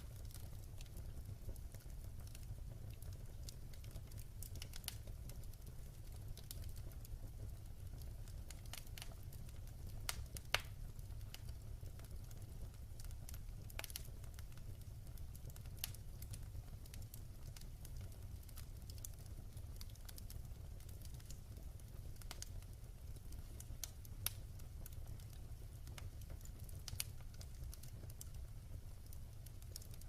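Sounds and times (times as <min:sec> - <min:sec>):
fire low rumble: 0:00.0 - 0:30.0
wood fire crackling and popping: 0:00.0 - 0:30.0.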